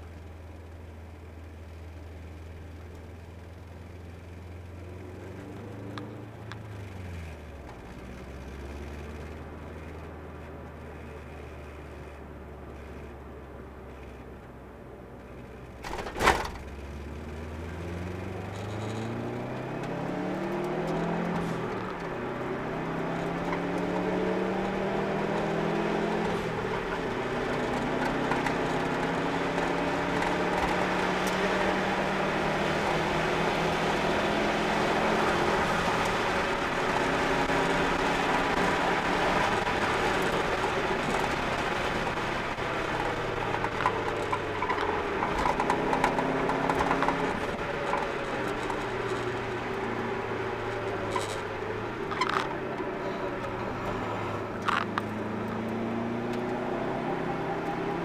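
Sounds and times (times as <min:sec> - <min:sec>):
road and wind noise: 0:00.0 - 0:58.0
car engine revving: 0:15.3 - 0:58.0.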